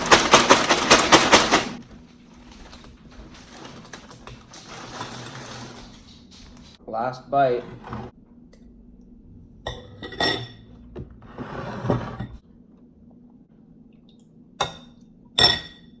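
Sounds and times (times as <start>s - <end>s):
metal spoon clinking ceramic bowl: 14.6s - 16.0s.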